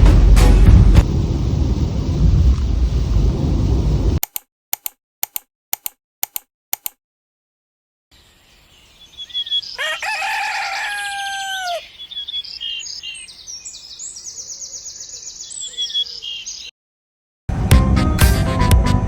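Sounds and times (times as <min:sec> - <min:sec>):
small birds chirping: 0:08.1 - 0:16.8
rooster crowing: 0:09.7 - 0:12.0.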